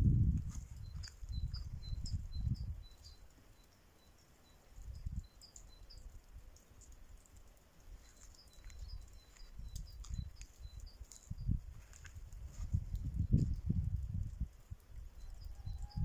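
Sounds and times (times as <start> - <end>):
small birds chirping: 0.4 - 16.0.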